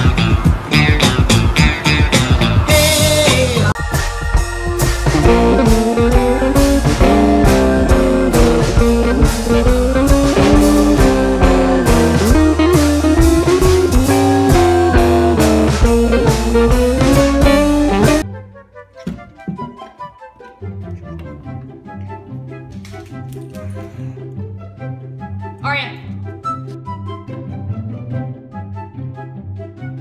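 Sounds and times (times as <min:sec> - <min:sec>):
guitar-led tune with drums: 0:00.0 - 0:18.2.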